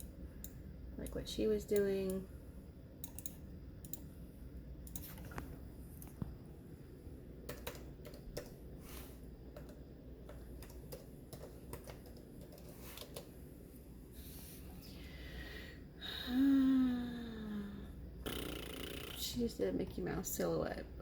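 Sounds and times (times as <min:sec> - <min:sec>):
low steady hum: 0:00.0 - 0:21.0
computer keyboard typing: 0:03.0 - 0:04.0, 0:07.5 - 0:08.6, 0:09.6 - 0:13.3.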